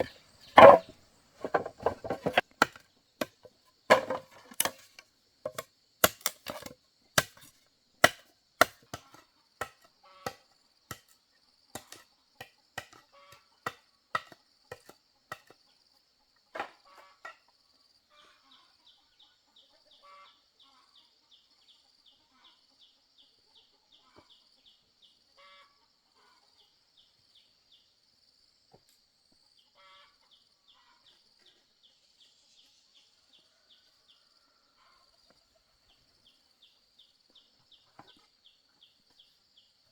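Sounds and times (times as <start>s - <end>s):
insects droning: 0.0s - 2.5s
tool striking wood: 0.0s - 2.8s, 3.9s - 4.8s.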